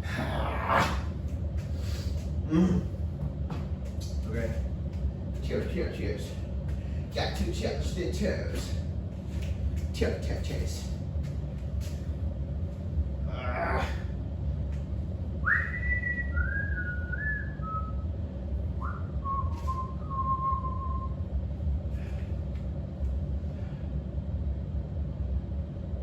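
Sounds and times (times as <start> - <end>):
steady low hum: 0.0 - 26.0
person whistling: 15.4 - 18.0, 18.8 - 21.2.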